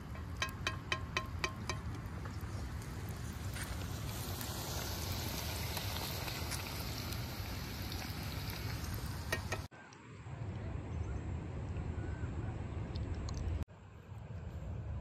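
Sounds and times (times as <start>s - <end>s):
vegetables sizzling in hot oil: 1.4s - 9.7s.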